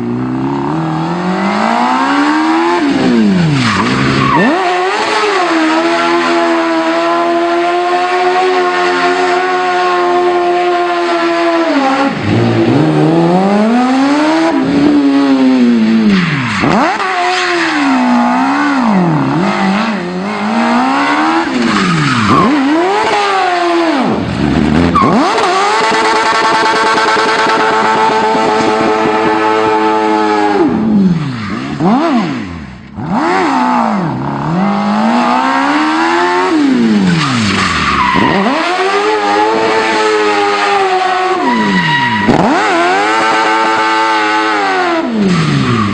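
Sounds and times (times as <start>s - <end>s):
motorcycle engine revving hard: 0.0s - 45.9s
tyre squeal: 20.4s - 23.1s, 37.1s - 43.8s.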